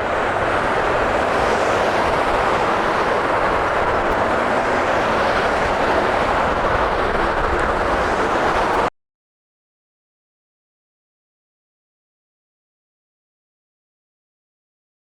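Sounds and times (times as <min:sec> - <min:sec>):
jet engines roaring: 0:00.0 - 0:08.9.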